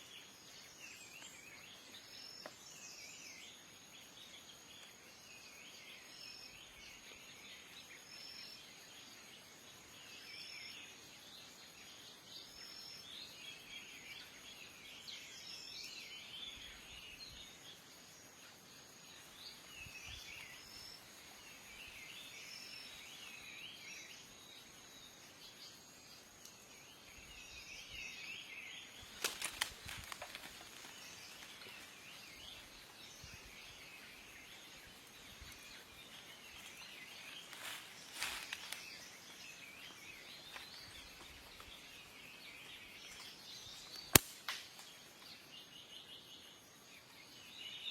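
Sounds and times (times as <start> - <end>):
small birds chirping: 0.0 - 47.9
sharp clicks: 44.0 - 44.9.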